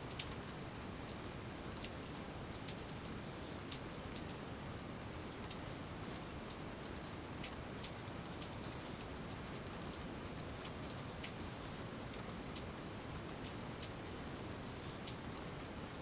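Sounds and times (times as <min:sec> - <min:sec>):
rain pattering: 0:00.0 - 0:16.0
raindrops ticking: 0:01.8 - 0:11.4.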